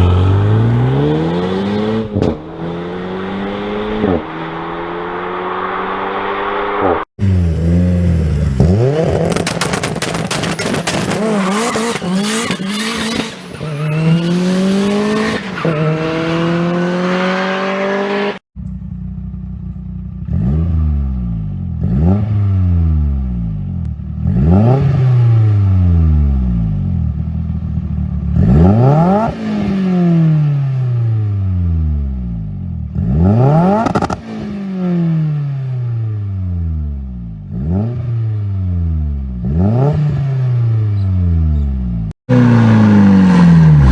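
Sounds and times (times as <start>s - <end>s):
exhaust crackling and popping: 8.3s - 12.9s.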